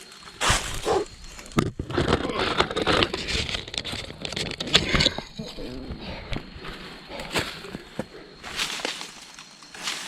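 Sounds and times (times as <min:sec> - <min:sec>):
dry leaves crackling underfoot: 0:00.0 - 0:01.6, 0:06.4 - 0:10.0.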